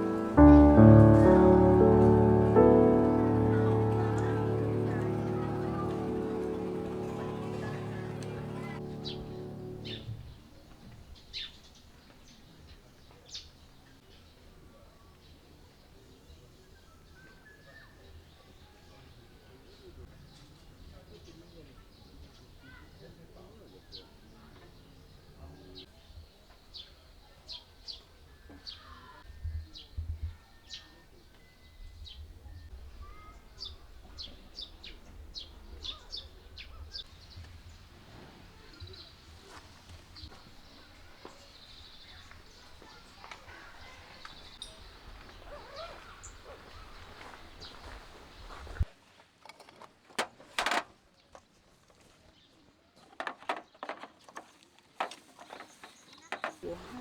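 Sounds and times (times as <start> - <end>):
small birds chirping: 0.0 - 48.9
scraping rustle: 37.1 - 41.3.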